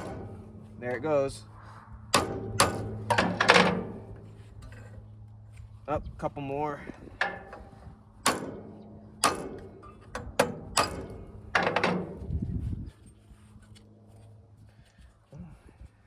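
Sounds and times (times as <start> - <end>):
hammer striking metal: 2.1 - 4.3, 7.2 - 12.1.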